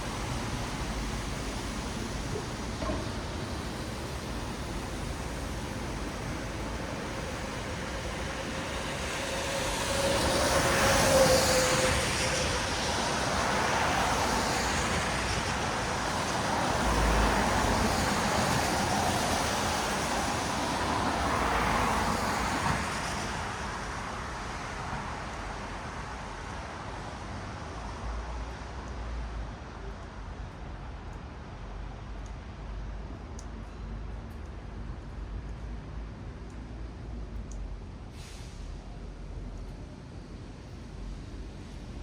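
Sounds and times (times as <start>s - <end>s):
tyres hissing on wet road: 0.0s - 32.8s, 36.8s - 42.0s.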